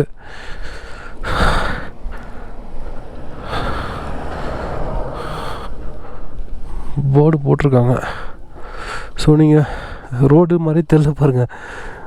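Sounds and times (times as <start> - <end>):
steady low rumble: 0.0 - 10.1
person breathing: 0.1 - 7.0, 8.0 - 10.1, 11.5 - 12.0.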